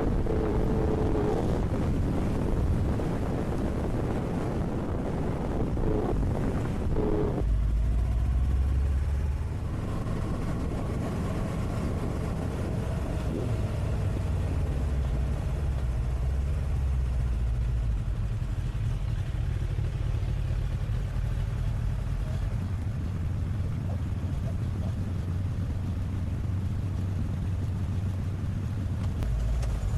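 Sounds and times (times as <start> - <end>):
wind noise on microphone: 0.0 - 7.5
engine running: 0.0 - 29.9.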